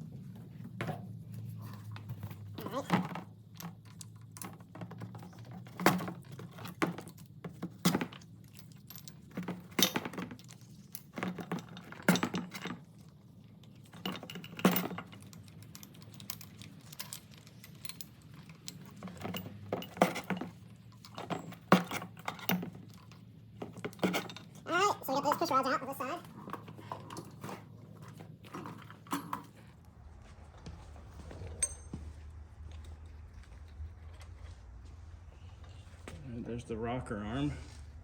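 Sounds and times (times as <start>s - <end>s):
low hum: 27.7s - 38.0s.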